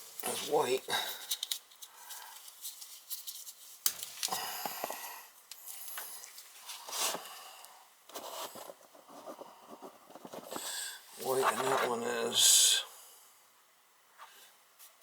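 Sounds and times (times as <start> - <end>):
wire rustles and scrapes: 0.2 - 4.3, 8.1 - 12.0.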